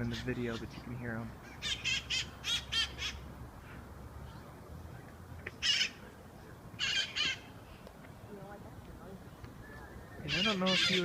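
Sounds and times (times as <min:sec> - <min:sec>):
parrots screeching: 0:01.4 - 0:03.3, 0:05.6 - 0:06.0, 0:06.8 - 0:07.5, 0:10.2 - 0:11.0.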